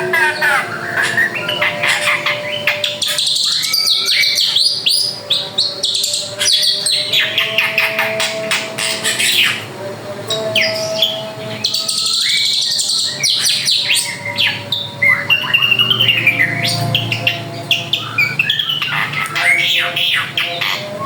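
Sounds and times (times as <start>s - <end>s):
bird singing varied song: 0.0s - 21.0s.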